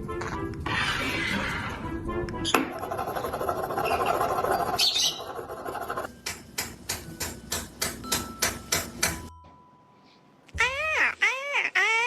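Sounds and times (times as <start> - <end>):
rapid sharp taps: 2.6 - 6.1.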